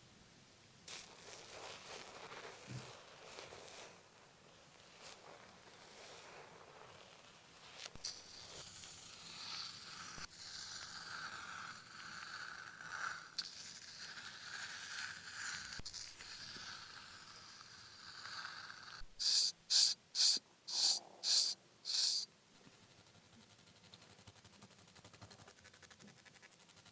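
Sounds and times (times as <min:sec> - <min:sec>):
blade scraping skin: 0:07.8 - 0:22.2.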